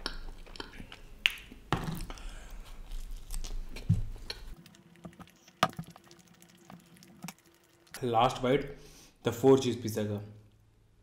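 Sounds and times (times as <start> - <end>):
chewing with wet mouth clicks: 0.0 - 1.5.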